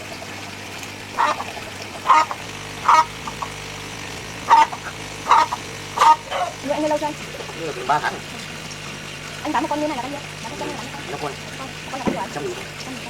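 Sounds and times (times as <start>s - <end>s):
waterfowl calling: 1.1s - 8.5s.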